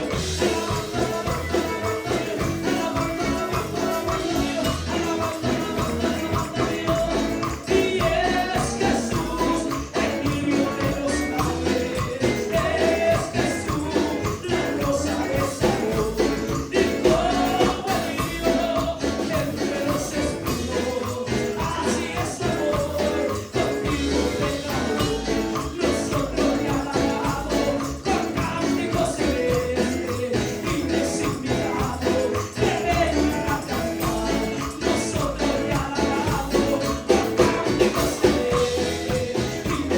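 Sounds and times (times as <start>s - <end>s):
tambourine jingling: 0.0s - 39.9s
voices singing: 0.0s - 39.9s.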